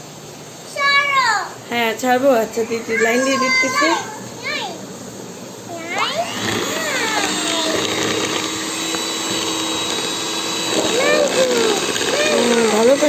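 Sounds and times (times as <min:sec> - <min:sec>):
electric hand mixer humming: 0:05.6 - 0:13.0.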